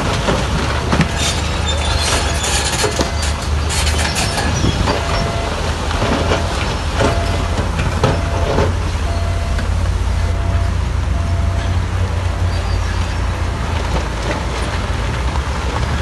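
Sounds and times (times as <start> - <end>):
harsh scraping: 0.0 - 14.9
bulldozer diesel engine running: 0.0 - 16.0
steel tracks clanking: 0.0 - 16.0
irregular knocks: 4.8 - 9.7.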